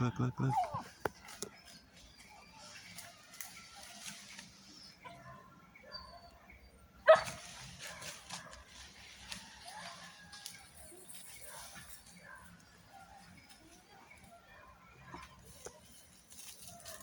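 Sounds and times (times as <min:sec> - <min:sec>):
dog barking: 0:05.1 - 0:08.7, 0:11.5 - 0:13.4.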